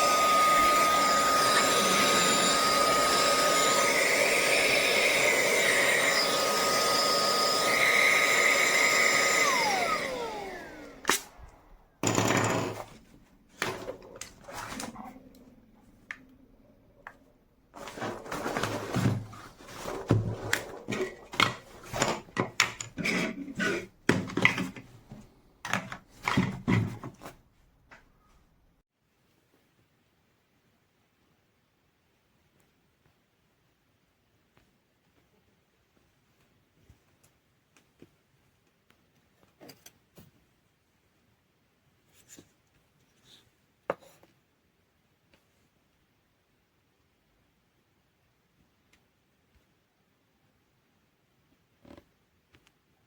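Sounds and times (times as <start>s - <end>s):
handheld vacuum motor whining: 0.0s - 13.0s, 13.6s - 16.2s, 17.8s - 24.8s.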